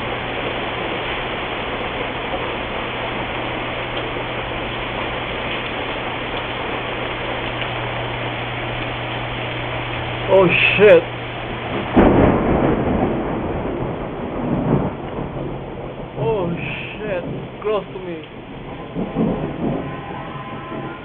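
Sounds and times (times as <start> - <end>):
steady low hum: 0.0 - 14.0
heavy rain on ground: 0.0 - 21.0.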